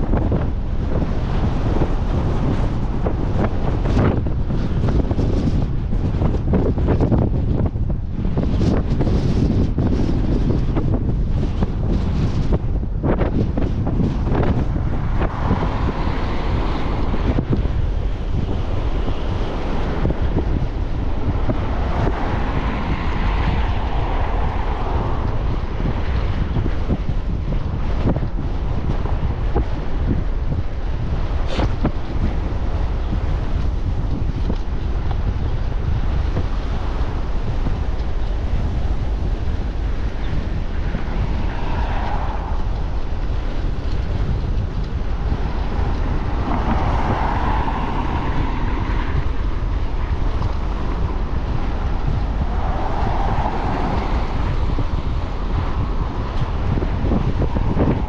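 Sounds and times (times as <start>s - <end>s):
wind buffeting microphone: 0.0s - 58.0s
smooth rushing sound: 8.3s - 28.2s, 36.8s - 58.0s.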